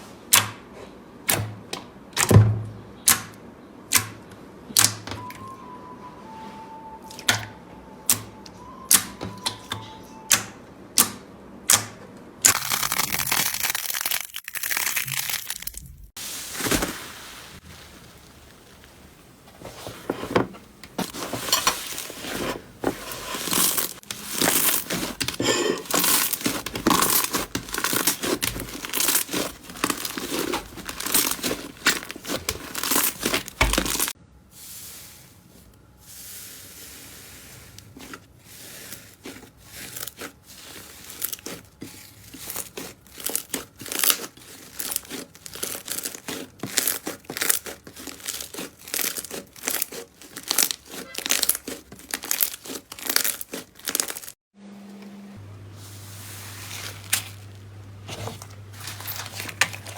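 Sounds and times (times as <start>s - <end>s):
slime crackling and popping: 12.5s - 17.0s, 23.4s - 34.2s, 38.8s - 54.4s
slime squishing: 12.5s - 34.2s, 36.1s - 54.4s, 56.0s - 59.9s.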